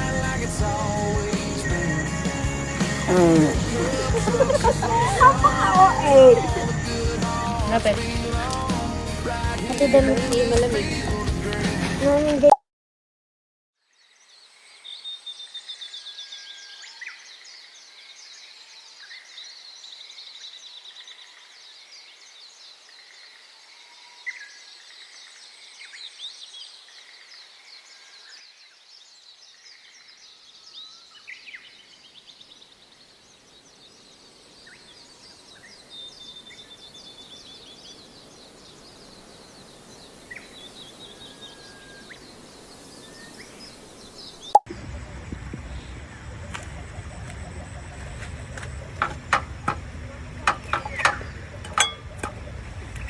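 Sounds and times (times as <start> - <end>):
birds chirping and calling: 0.0 - 11.1, 35.6 - 53.0.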